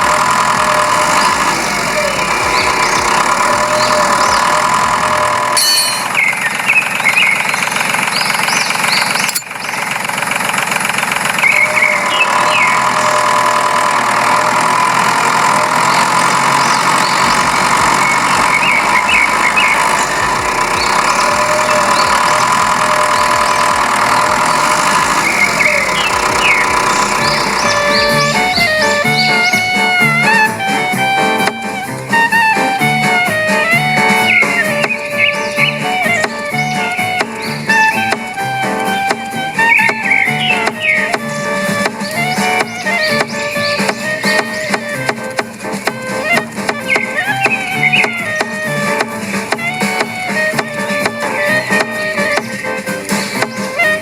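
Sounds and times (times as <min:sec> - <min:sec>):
small motor whining: 0:00.0 - 0:54.0
short high chirps: 0:05.6 - 0:06.4.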